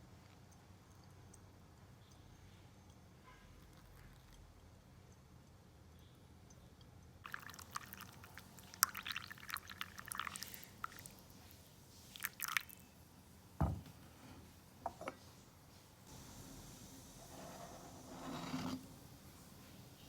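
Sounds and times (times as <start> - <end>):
light knocks: 13.6 - 14.0
soft thump: 13.6 - 14.0.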